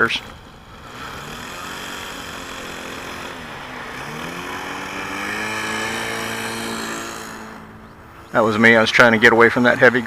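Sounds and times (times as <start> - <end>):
model airplane engine at high throttle: 0.0 - 10.0.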